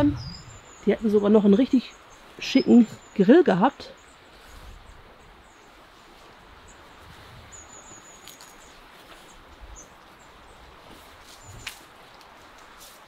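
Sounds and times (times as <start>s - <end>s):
small bird chirping: 0.0s - 5.8s, 6.7s - 10.6s
faint outdoor background noise: 0.0s - 13.0s.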